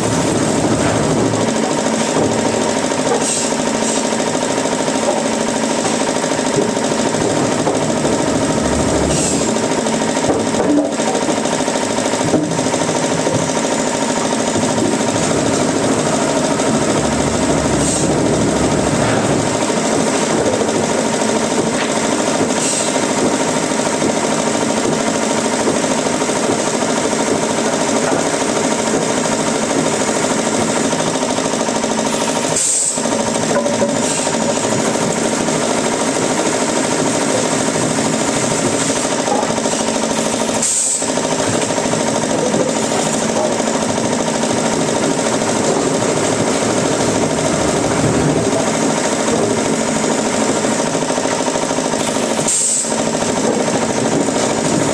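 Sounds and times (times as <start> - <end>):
wood-processing machinery clatter: 0.0 - 54.9.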